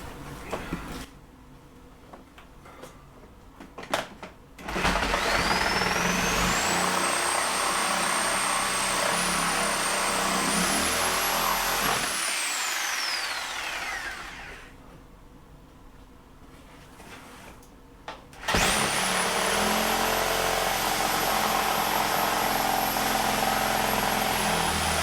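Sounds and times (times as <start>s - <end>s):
power saw cutting paneling: 4.6s - 14.8s, 18.4s - 25.0s.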